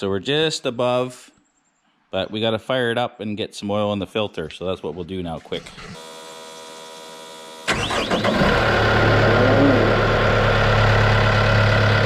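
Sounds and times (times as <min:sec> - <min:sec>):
diesel engine starting and idling: 0:07.6 - 0:12.0.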